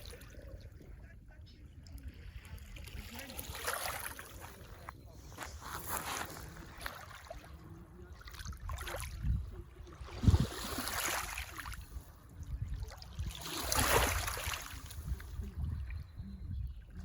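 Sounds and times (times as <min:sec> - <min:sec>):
lake waves washing on shore: 0:01.5 - 0:15.9
wind on microphone: 0:08.0 - 0:17.0.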